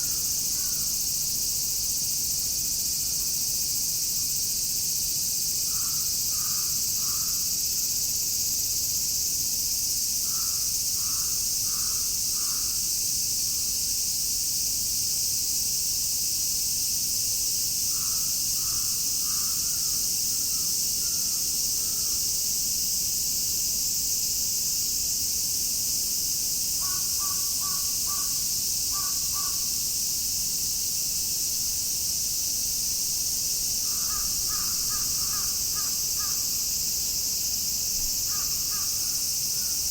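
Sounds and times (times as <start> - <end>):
cicadas shrilling: 0.0 - 39.9
crow cawing: 10.3 - 12.7, 26.8 - 28.3, 28.9 - 29.6, 33.8 - 36.4, 38.3 - 39.1.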